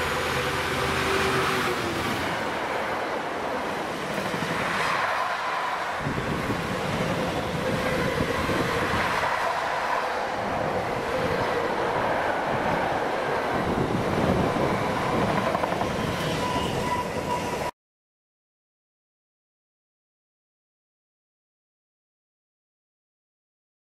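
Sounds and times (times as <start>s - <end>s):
freight train rumble and rail clatter: 0.0s - 17.7s.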